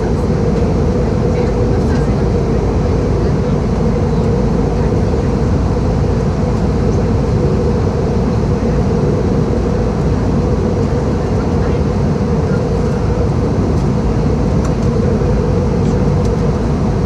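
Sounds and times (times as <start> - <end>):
airflow over fuselage: 0.0 - 17.0
constant cabin hum: 0.0 - 17.0
jet engine drone: 0.0 - 17.0.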